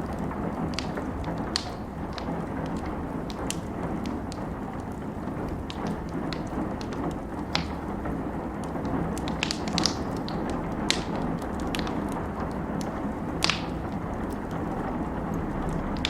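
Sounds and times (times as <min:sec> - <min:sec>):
rain falling: 0:00.0 - 0:16.0
wood fire crackling and popping: 0:00.0 - 0:16.0.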